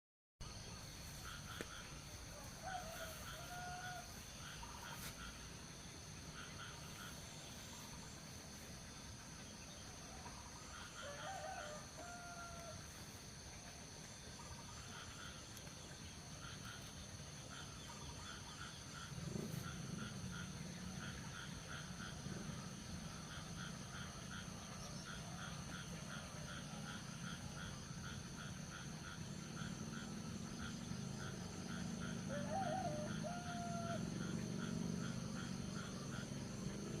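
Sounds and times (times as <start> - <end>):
distant rooster crowing: 2.2 - 5.2, 10.7 - 12.9, 31.6 - 34.4.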